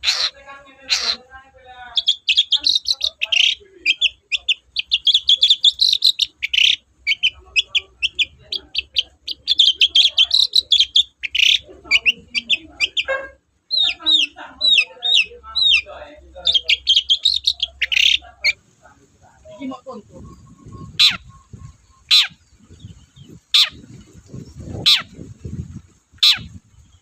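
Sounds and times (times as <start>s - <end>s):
bird singing chattering song: 0.0s - 18.8s, 19.4s - 27.0s
down-slurred whistled bird notes: 20.0s - 24.9s.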